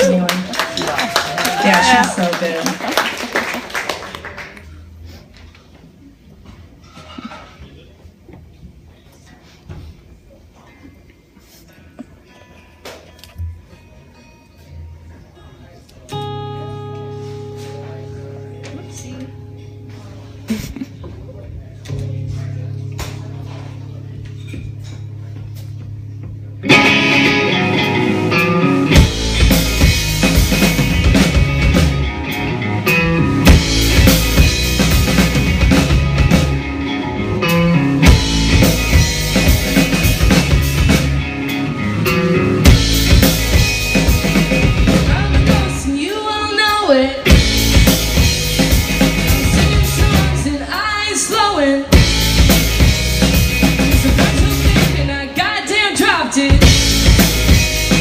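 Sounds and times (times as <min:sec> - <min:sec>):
heavy bass guitar: 0:16.1 - 0:58.0
live rock band playing: 0:16.1 - 0:58.0.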